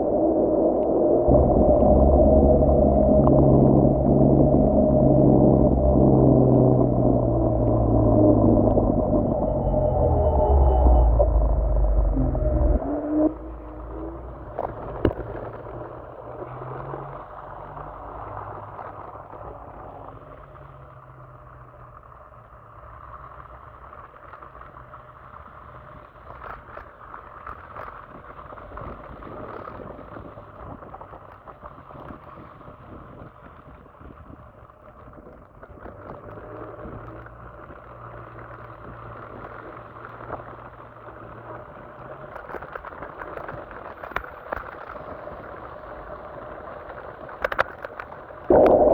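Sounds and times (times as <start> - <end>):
low motor hum: 0.0 - 23.0, 48.5 - 48.9.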